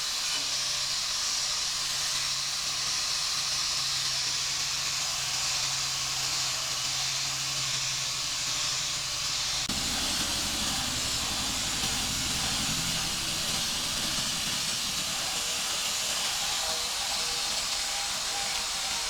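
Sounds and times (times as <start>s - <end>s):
loud pressurised hiss: 0.0s - 19.0s
low fluttering machine hum: 9.1s - 15.6s.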